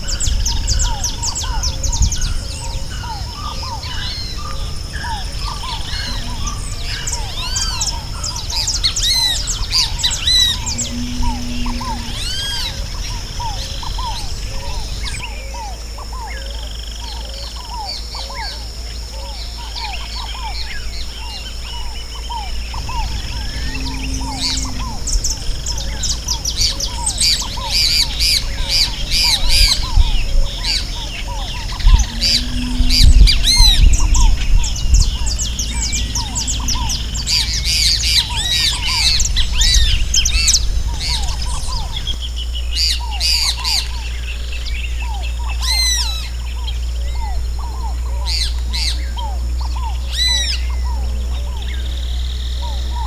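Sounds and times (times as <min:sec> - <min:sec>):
low rumble: 0:00.0 - 0:16.1, 0:19.6 - 0:53.0
birds chirping and calling: 0:00.0 - 0:53.0
short lower bird calls: 0:03.1 - 0:16.5.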